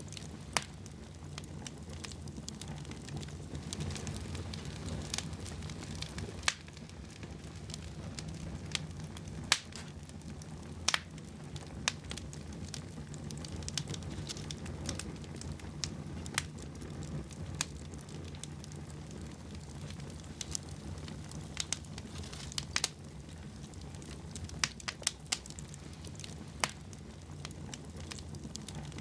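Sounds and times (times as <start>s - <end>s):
fire crackles and pops: 0.0s - 29.0s
low rumble of flames: 0.0s - 29.0s.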